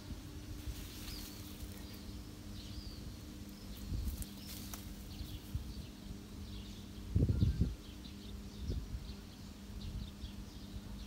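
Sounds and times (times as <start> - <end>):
rustles and crackles: 0.0 - 6.0
low steady hum: 0.0 - 11.0
small birds chirping: 0.0 - 11.0.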